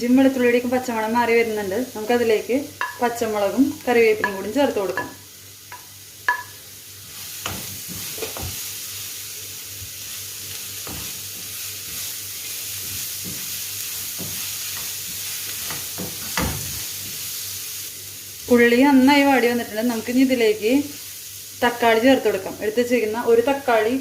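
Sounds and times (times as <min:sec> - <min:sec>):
food sizzling in hot oil: 0:00.0 - 0:24.0
spatula scraping and knocking pan: 0:07.4 - 0:08.6, 0:10.5 - 0:17.2.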